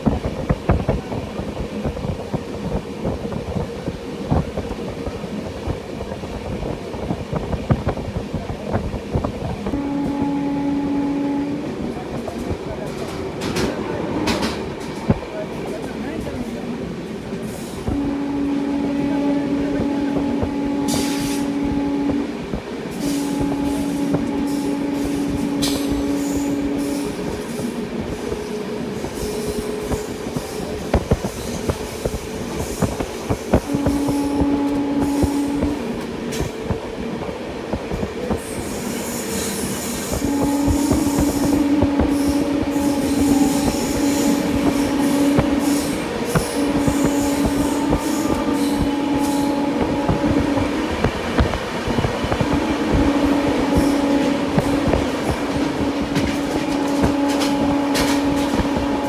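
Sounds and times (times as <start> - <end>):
train wheels clattering: 11.9 - 16.6, 19.7 - 59.0.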